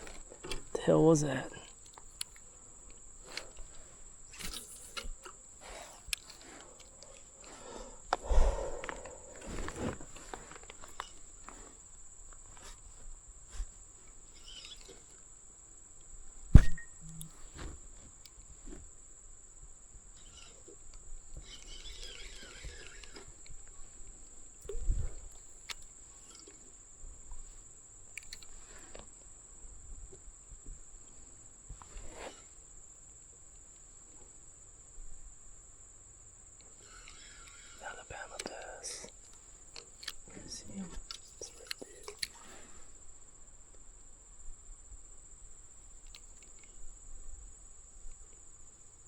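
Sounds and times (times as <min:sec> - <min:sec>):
dull thump: 0:16.5 - 0:17.8
short rasping: 0:20.2 - 0:20.8, 0:21.4 - 0:23.6, 0:36.8 - 0:38.0.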